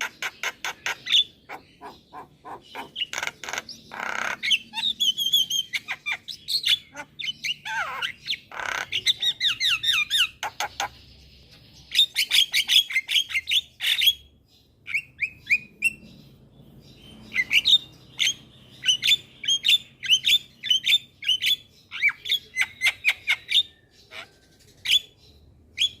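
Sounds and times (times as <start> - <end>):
mynas calling: 0.0 - 11.0.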